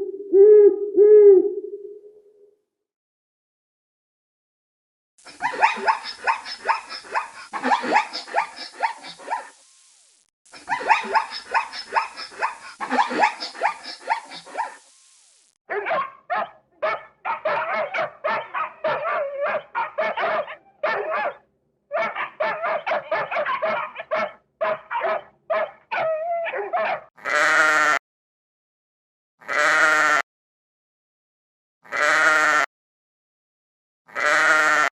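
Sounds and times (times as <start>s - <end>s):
rapid animal calling: 5.4s - 9.6s, 10.7s - 14.8s
short bleats: 27.2s - 28.0s, 29.4s - 30.2s, 31.9s - 32.7s, 34.1s - 34.9s.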